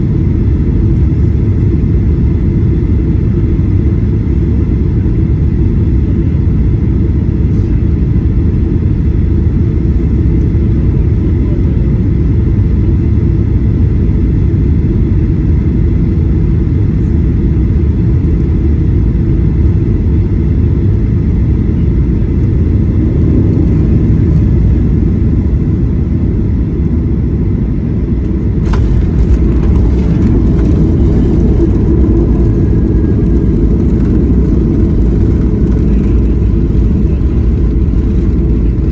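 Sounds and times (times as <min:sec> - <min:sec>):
airliner low rumble: 0:00.0 - 0:38.9
faint whining tones: 0:28.6 - 0:38.9.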